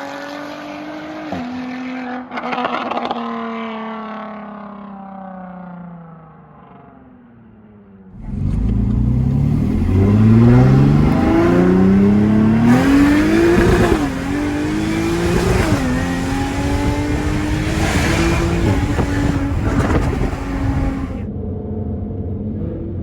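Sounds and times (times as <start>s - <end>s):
car exhaust accelerating: 8.1s - 21.3s.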